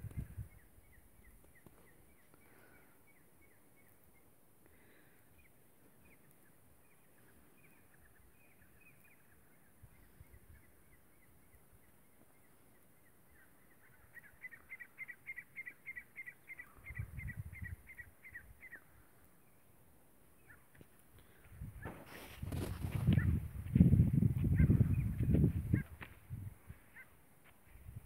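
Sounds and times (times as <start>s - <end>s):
low wind rumble on microphone: 0.0s - 1.4s, 16.7s - 18.6s, 21.3s - 26.9s, 27.7s - 28.0s
bird chirping: 5.3s - 21.4s.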